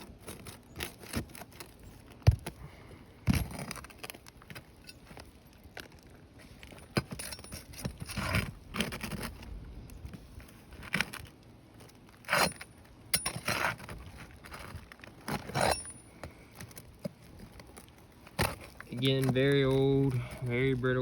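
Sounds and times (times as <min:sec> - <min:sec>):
metal bar scraping under shingles: 0:00.0 - 0:02.1, 0:06.4 - 0:21.0
shingles cracking: 0:00.0 - 0:21.0.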